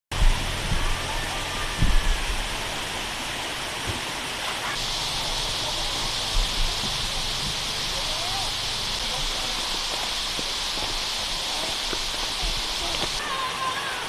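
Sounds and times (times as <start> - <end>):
low thumps: 0.1 - 4.1
waterfall rushing: 0.1 - 14.0.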